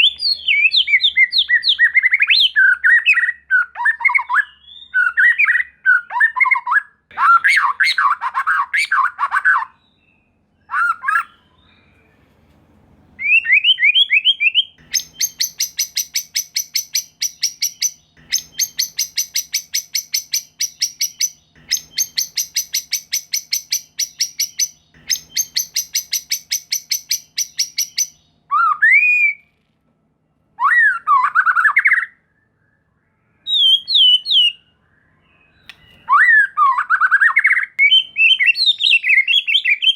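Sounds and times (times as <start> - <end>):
songbird whistled phrases: 0.0 - 10.0, 13.2 - 29.5, 30.6 - 39.9
bird rapid chattering notes: 14.7 - 28.2.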